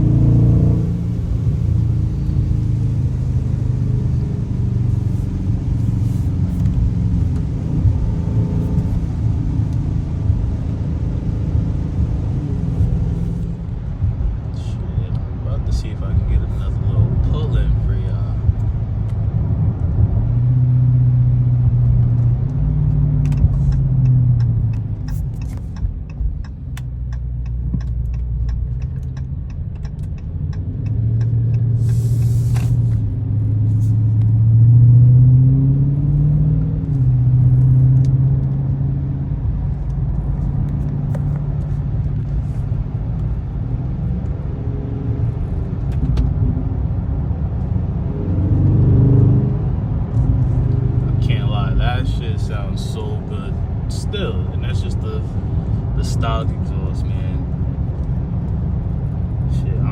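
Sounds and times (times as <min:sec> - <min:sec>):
car engine humming while driving: 0:00.0 - 0:59.9
light ticks: 0:23.2 - 0:32.0
short hiss: 0:31.8 - 0:32.9.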